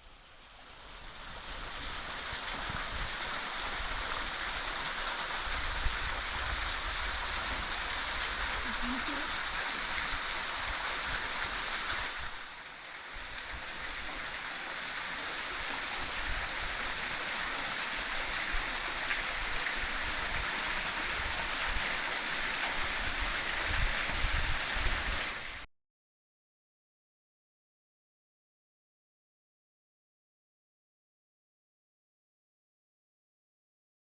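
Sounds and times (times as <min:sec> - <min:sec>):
water rushing in creek: 0:00.0 - 0:25.7.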